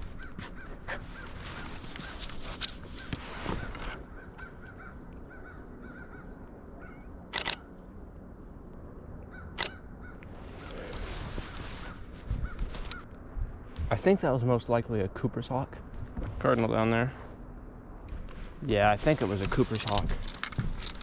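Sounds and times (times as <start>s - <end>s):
crows cawing: 0.0s - 2.2s, 2.8s - 7.1s, 9.3s - 13.1s.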